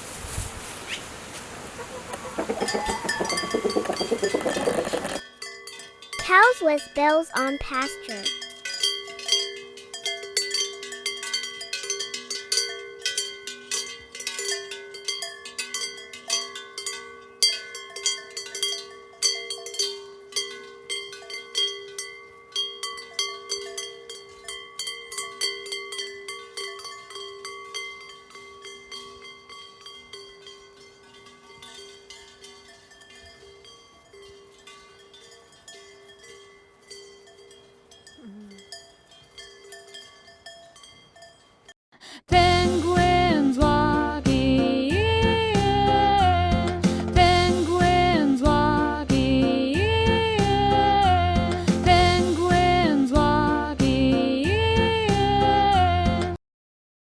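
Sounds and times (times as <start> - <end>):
cowbells clanging: 2.0 - 41.8.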